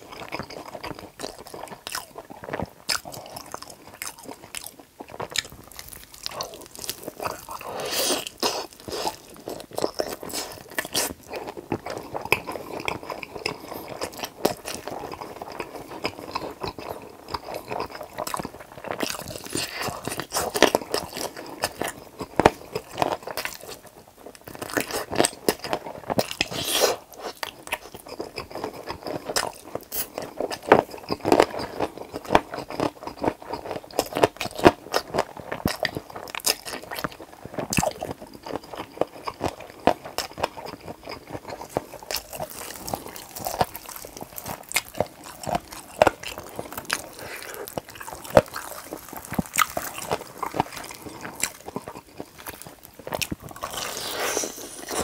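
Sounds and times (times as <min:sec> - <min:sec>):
chewing crunchy fried chicken: 0:00.0 - 0:55.0
wet mouth sounds: 0:26.2 - 0:27.8, 0:37.7 - 0:55.0.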